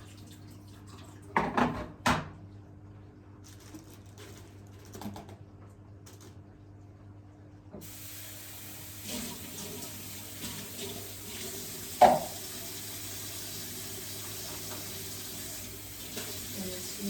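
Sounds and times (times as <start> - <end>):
running water: 7.8 - 17.0
loud knock: 12.0 - 12.4.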